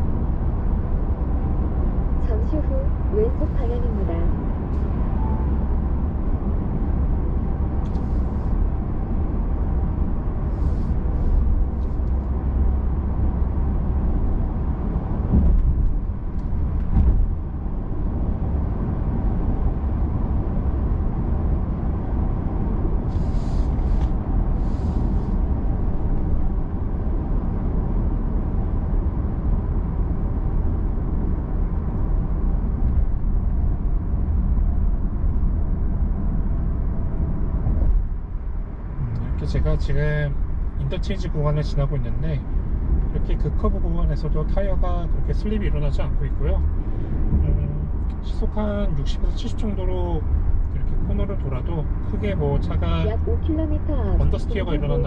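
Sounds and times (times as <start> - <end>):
car interior road rumble: 0.0 - 55.0
car bumps: 15.3 - 16.0, 16.8 - 17.4.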